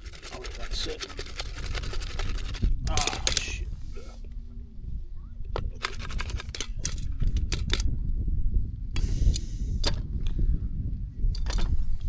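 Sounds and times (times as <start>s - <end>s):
sharp clicks and rattles: 0.0s - 3.7s, 5.5s - 8.0s, 11.3s - 12.0s
short gas hiss: 9.0s - 9.9s.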